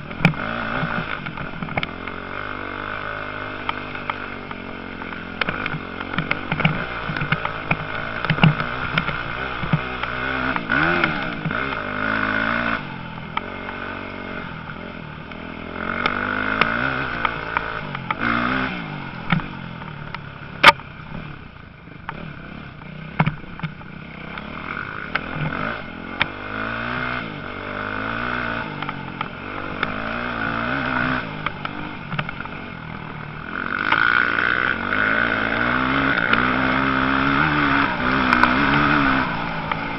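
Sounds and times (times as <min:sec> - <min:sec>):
motocross motorcycles revving: 0:00.0 - 0:39.9
small clicks and clatter: 0:00.1 - 0:02.2, 0:03.6 - 0:11.8, 0:28.4 - 0:32.7.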